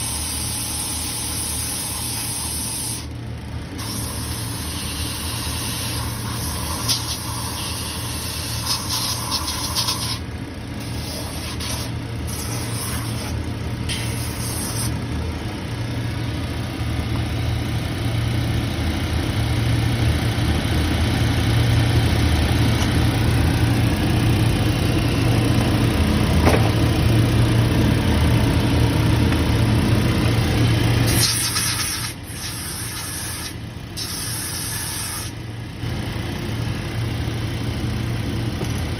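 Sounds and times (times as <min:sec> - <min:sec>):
hiss bursts: 0:03.8 - 0:10.2, 0:10.9 - 0:14.9, 0:31.1 - 0:35.4.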